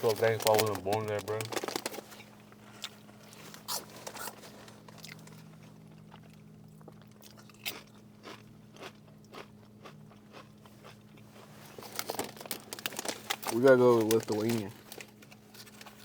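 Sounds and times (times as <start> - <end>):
low steady hum: 0.0 - 16.0
person chewing crunchy food: 1.5 - 13.6.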